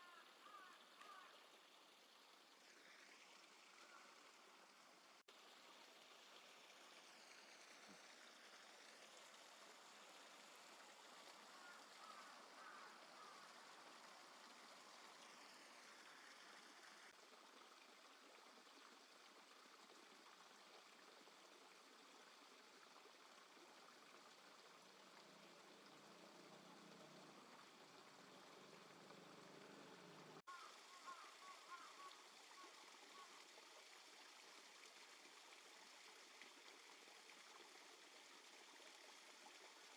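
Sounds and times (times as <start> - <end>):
faint river water flowing: 0.0 - 39.9.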